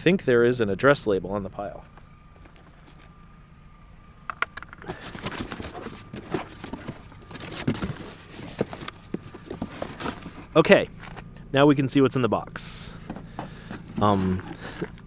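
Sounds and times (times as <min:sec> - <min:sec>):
low steady hum: 0:00.0 - 0:15.0
cardboard box rustling and knocking: 0:04.6 - 0:11.2, 0:13.0 - 0:15.0.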